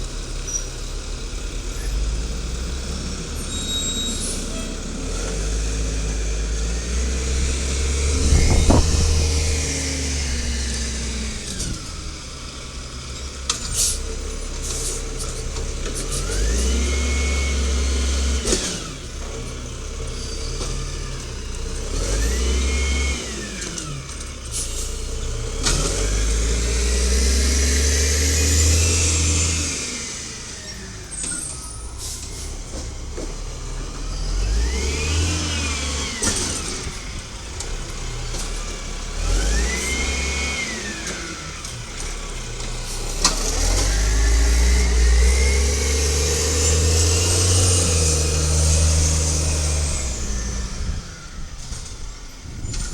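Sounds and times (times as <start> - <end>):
garbage truck engine revving: 0.0 - 52.9
sharp knocks: 7.9 - 10.4.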